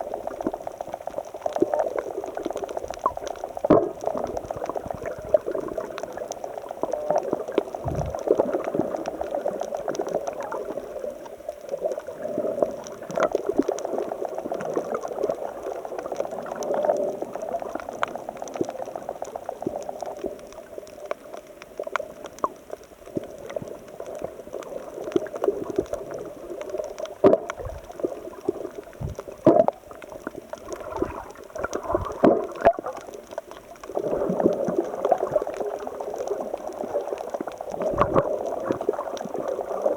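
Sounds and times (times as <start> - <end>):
water splashing: 27.2 - 33.2.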